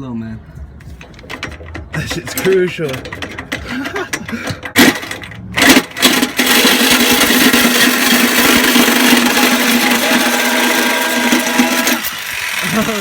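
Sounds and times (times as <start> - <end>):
electric jigsaw cutting metal pipe: 4.8 - 13.0.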